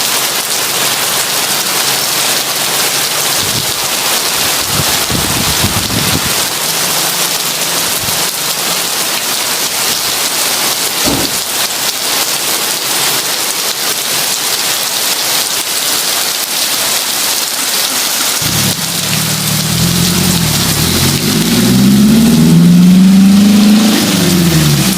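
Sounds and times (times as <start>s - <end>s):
heavy rain pouring: 0.0s - 24.9s
short thunder clap: 11.0s - 11.4s
low thunder rumbling: 18.4s - 21.6s.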